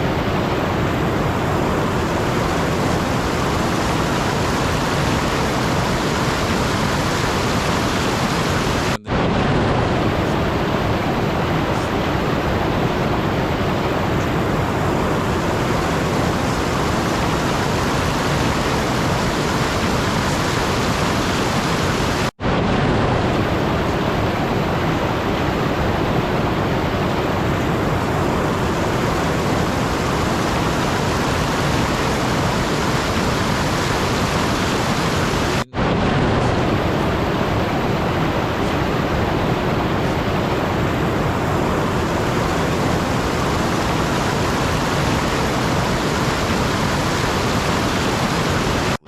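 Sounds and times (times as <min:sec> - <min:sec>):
loud static rushing noise: 0:00.0 - 0:49.0.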